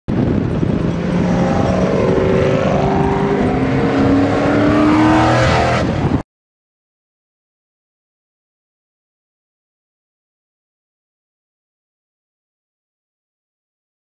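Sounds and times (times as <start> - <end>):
car engine revving under load: 0.2 - 6.2.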